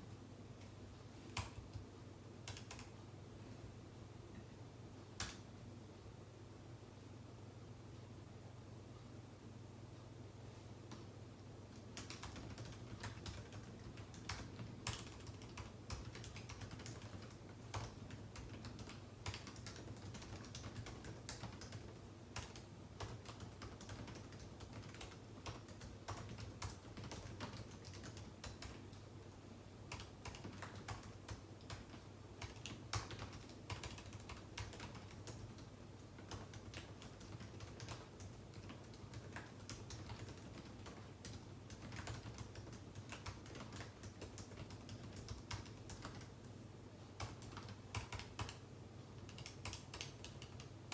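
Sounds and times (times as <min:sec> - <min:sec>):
faint low hum: 0:00.0 - 0:50.9
keyboard typing: 0:01.2 - 0:03.0, 0:11.7 - 0:29.1, 0:29.8 - 0:46.5, 0:47.2 - 0:50.9.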